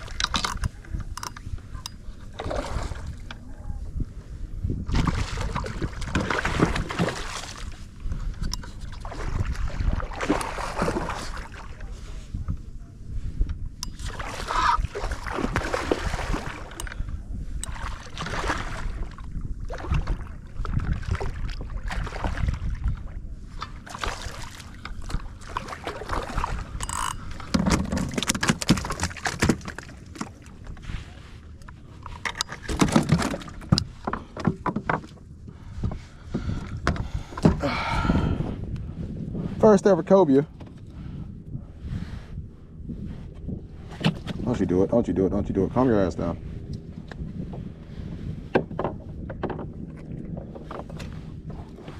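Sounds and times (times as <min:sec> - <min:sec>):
water sloshing and splashing: 0:00.0 - 0:03.6, 0:04.8 - 0:12.2, 0:13.8 - 0:38.4.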